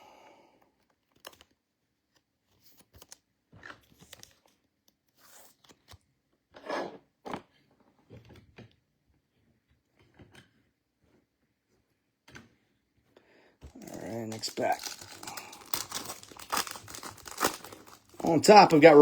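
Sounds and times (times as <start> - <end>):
cards and foil wrappers handled: 13.7 - 19.0.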